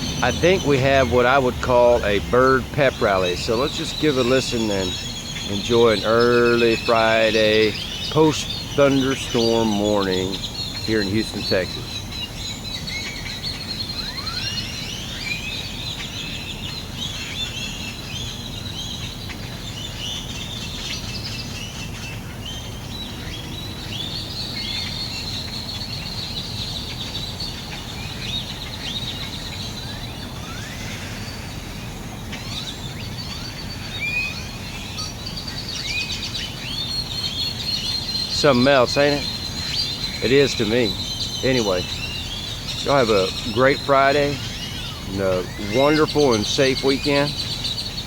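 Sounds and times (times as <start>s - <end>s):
low city hum: 0.0s - 48.0s
many birds chirping: 0.0s - 48.0s.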